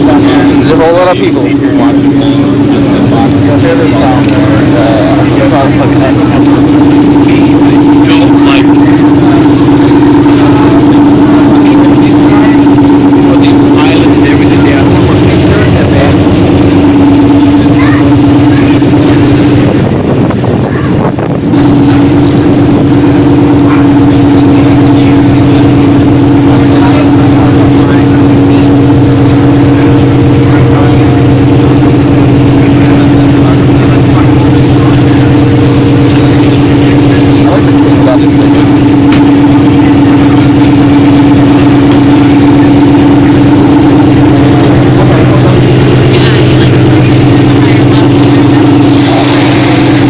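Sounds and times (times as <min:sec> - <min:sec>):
car engine droning: 0:00.0 - 0:50.0.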